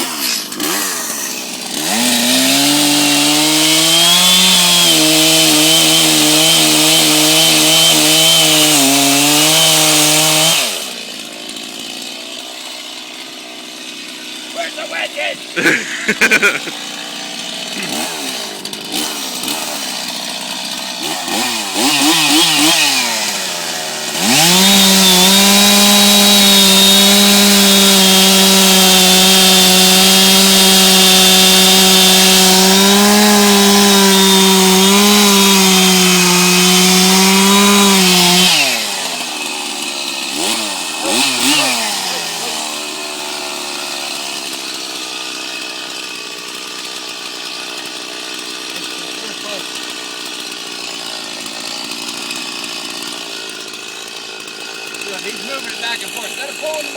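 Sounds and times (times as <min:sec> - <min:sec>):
chainsaw idling and revving: 0:00.0 - 0:56.9.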